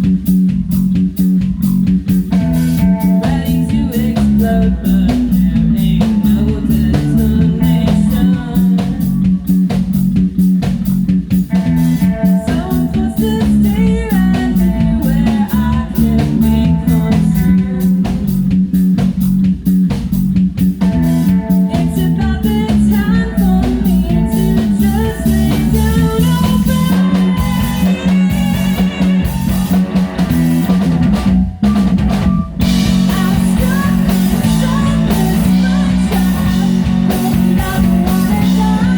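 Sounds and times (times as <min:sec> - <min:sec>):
bass: 0:00.0 - 0:38.9
drum kit: 0:00.0 - 0:38.9
guitar: 0:00.0 - 0:38.9
person singing: 0:02.8 - 0:09.6, 0:12.0 - 0:18.5, 0:21.1 - 0:30.3, 0:32.6 - 0:38.9.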